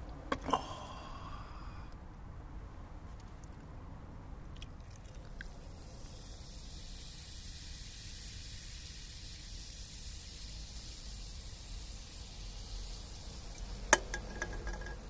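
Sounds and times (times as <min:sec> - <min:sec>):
steady fire hiss: 0:05.4 - 0:15.0.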